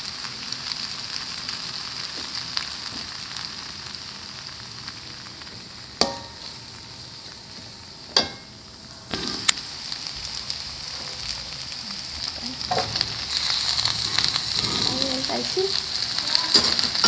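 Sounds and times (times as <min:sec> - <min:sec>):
meatballs sizzling in oil: 0:00.0 - 0:17.0
spatula knocking on pan: 0:06.0 - 0:06.4.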